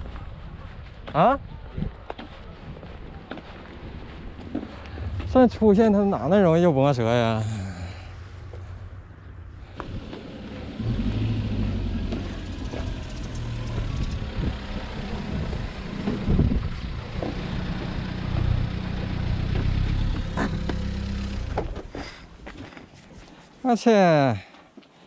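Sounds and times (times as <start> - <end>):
engine humming: 3.8 - 22.7.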